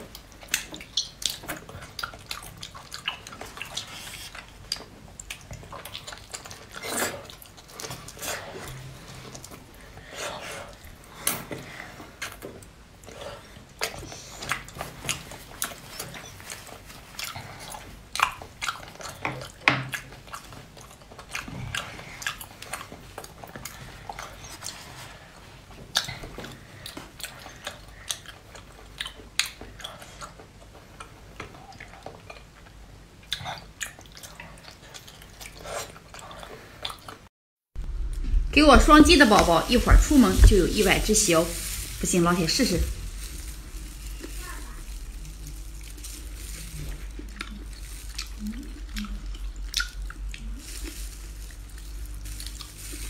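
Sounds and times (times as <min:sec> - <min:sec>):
wet chewing: 0:00.0 - 0:37.3, 0:38.0 - 0:53.0
mouth clicks and smacks: 0:48.2 - 0:50.4.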